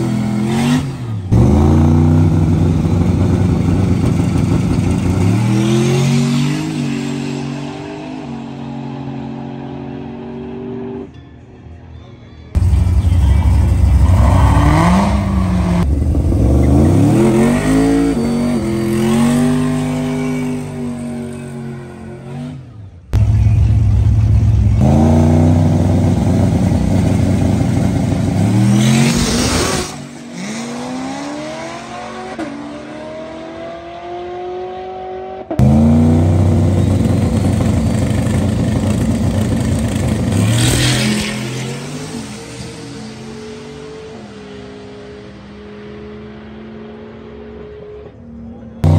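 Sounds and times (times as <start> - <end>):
drag racing engines revving: 12.6 - 48.9.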